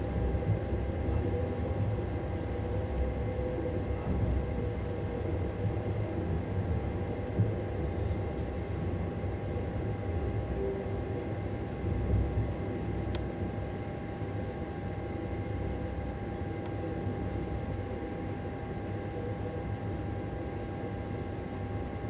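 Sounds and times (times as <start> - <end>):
constant whine: 0.0 - 22.0.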